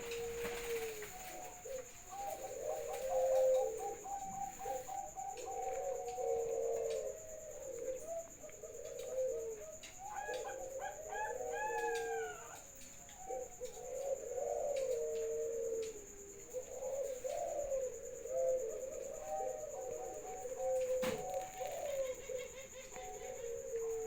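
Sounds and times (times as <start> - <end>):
doves cooing: 0.0 - 24.0.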